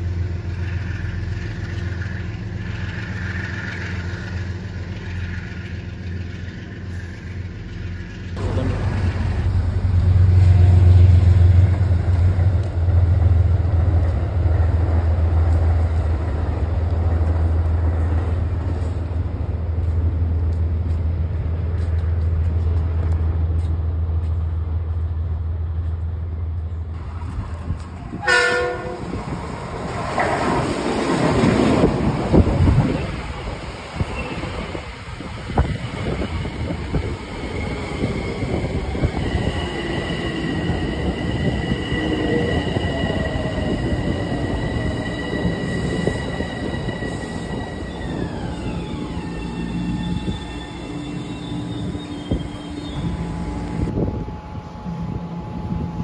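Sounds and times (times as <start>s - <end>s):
low engine drone: 0.0s - 13.8s
electric train rumbling: 0.0s - 56.0s
train horn blast: 28.1s - 29.2s
high whining squealing tones: 35.9s - 56.0s.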